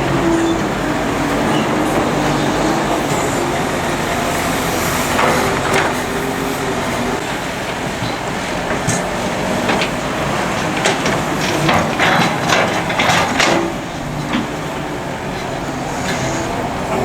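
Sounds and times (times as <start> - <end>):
excavator engine drone: 0.0 - 17.0
metallic clanks and knocks: 7.7 - 17.0.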